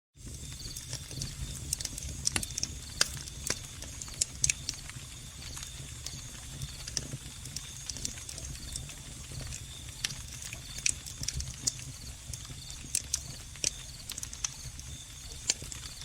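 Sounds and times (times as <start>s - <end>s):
cricket trill: 0.2s - 16.0s
wood fire crackling and popping: 0.2s - 16.0s.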